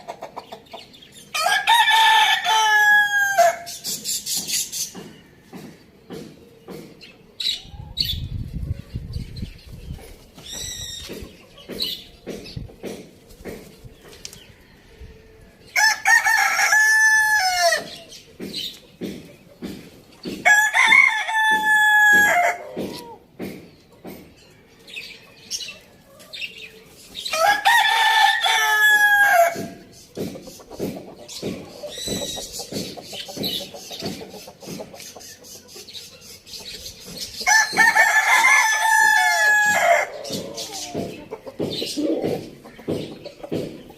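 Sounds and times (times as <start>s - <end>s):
chickens clucking: 0.0s - 43.9s
rooster crowing: 1.4s - 3.7s, 15.8s - 17.9s, 20.5s - 23.1s, 27.3s - 29.8s, 37.5s - 40.2s.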